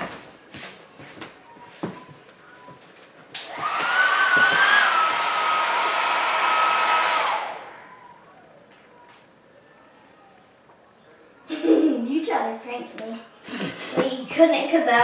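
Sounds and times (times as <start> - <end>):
hair dryer blowing: 3.4 - 8.2.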